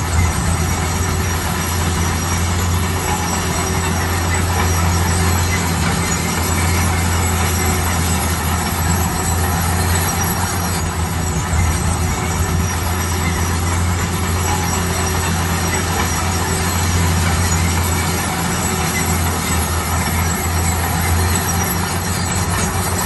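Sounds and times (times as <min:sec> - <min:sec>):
construction machine engine running: 0:00.0 - 0:23.0.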